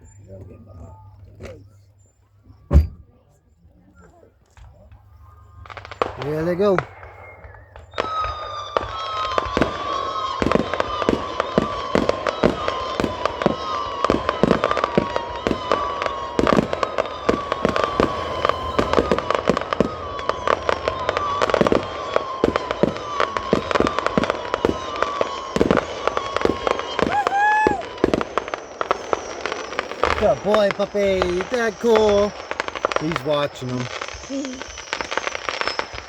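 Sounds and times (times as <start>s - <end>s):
fireworks bangs and pops: 4.5s - 36.0s
high falling tone: 15.0s - 22.8s.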